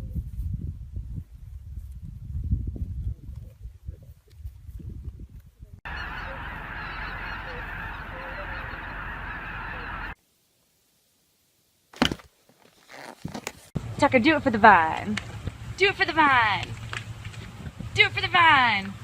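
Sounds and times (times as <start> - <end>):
flock of birds honking: 5.9 - 10.2.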